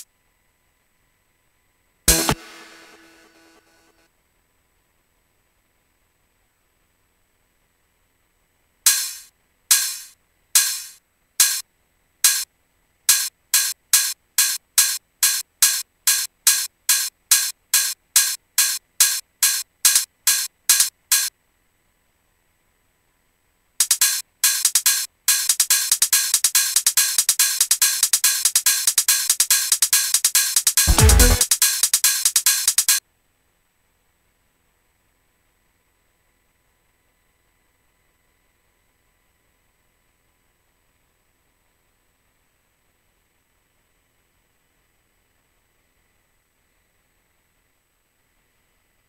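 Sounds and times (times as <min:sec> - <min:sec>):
electronic hi-hat hits: 0:02.1 - 0:04.0, 0:08.9 - 0:11.6, 0:12.2 - 0:12.5, 0:13.1 - 0:21.3, 0:23.8 - 0:33.0
deep kick drum: 0:30.9 - 0:31.4.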